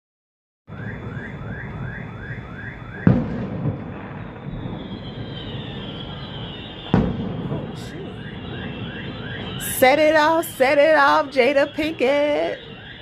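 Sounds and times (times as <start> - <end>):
firework bang: 0.7 - 13.0
high descending whistle: 3.8 - 13.0.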